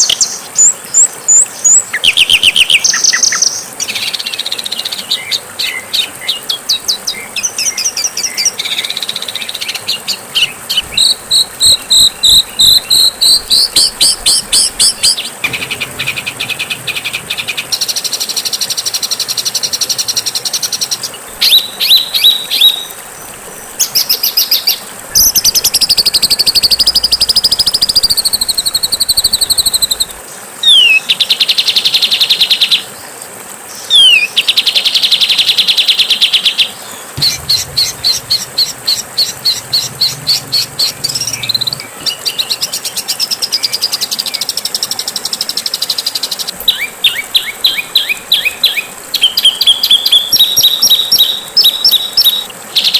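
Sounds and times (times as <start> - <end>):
bird calls and trills: 0.0 - 52.9
downward-sweeping whistles: 24.0 - 30.2.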